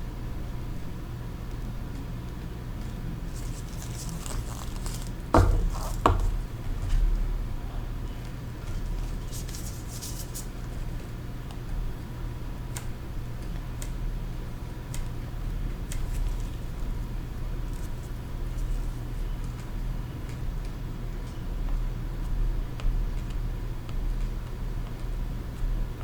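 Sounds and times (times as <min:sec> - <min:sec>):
steady low hum: 0:02.6 - 0:21.1
faint scrapes and ticks: 0:03.3 - 0:06.4, 0:08.7 - 0:10.7.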